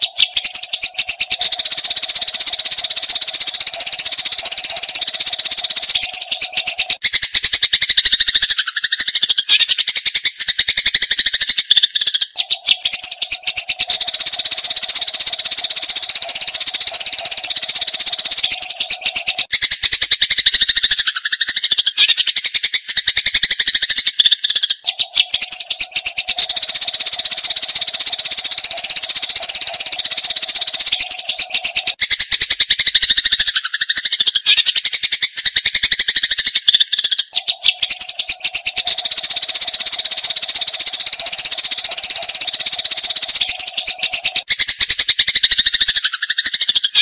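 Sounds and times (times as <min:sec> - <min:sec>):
sparrows chirping rapidly: 0:00.0 - 0:47.0.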